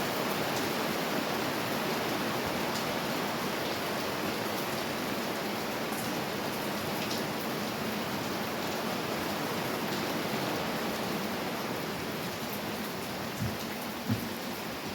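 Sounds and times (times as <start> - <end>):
steady rain falling: 0.0 - 14.9
soft bump: 13.4 - 14.4.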